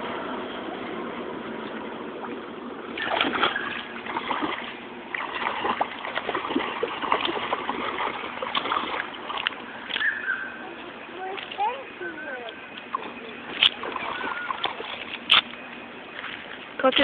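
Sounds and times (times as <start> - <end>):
feet splashing through puddle: 2.2 - 10.6, 12.8 - 17.0.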